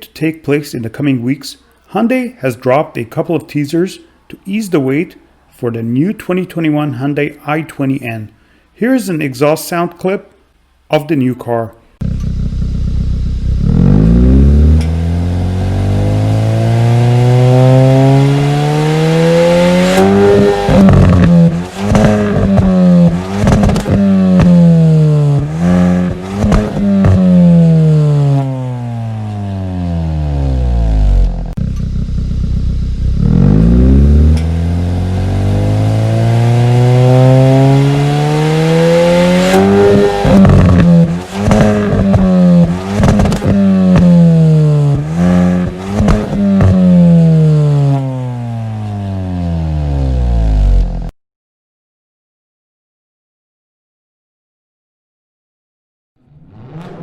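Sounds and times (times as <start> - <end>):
exhaust cracks: 12.0 - 48.8
car engine revving: 12.0 - 51.1, 56.2 - 57.0.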